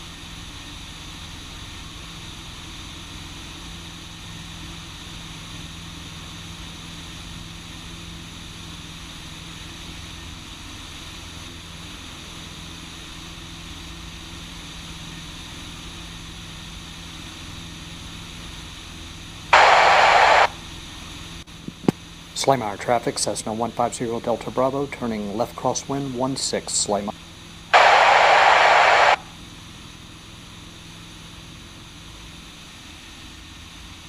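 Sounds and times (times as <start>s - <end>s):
small plane engine droning: 0.0s - 20.6s, 27.2s - 29.3s
loud hiss: 19.6s - 20.5s, 27.7s - 29.3s.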